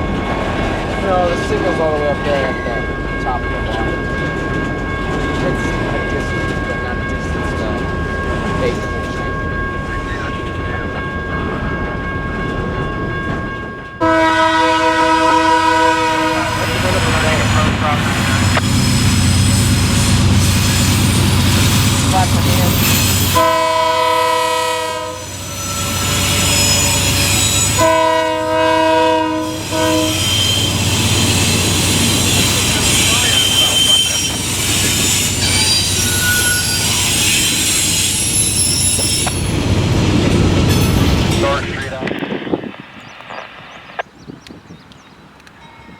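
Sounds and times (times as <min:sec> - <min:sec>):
train wheels rumbling on rail: 0:00.0 - 0:45.9
locomotive horn: 0:14.0 - 0:20.5, 0:22.1 - 0:39.4
wheel squeal: 0:18.5 - 0:23.4, 0:25.2 - 0:27.8, 0:29.6 - 0:39.6.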